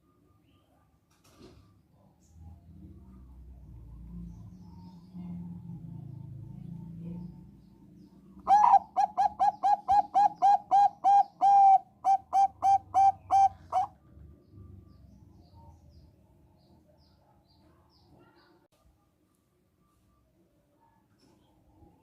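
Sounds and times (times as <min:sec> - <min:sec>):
dove cooing: 0:08.4 - 0:14.0.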